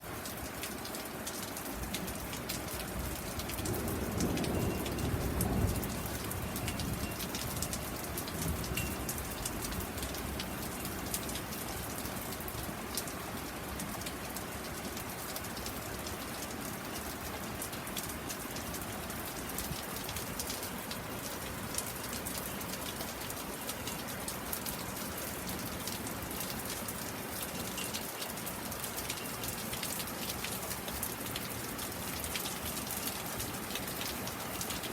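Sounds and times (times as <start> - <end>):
steady rain falling: 0.0 - 34.9
rumble of thunder: 3.6 - 7.8.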